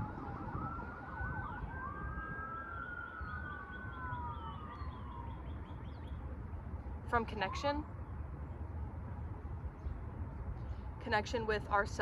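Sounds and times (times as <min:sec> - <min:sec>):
emergency siren: 0:00.0 - 0:06.6.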